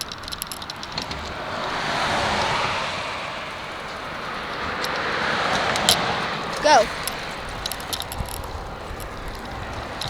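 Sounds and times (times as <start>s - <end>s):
car passing: 0.0s - 10.0s.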